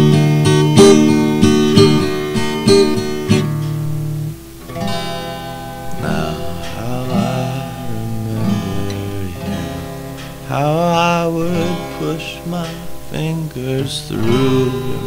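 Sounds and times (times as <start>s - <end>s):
held wavering notes: 0.0s - 15.0s
strummed acoustic guitar: 0.0s - 15.0s.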